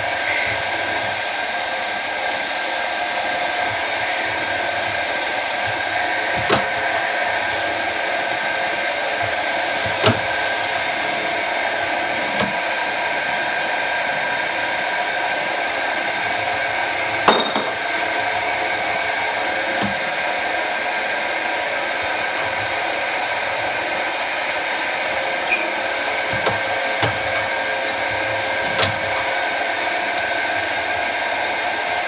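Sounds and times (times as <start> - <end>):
lathe whining: 0.0 - 32.0
sharp clicks or knocks: 6.4 - 6.8, 25.1 - 29.3.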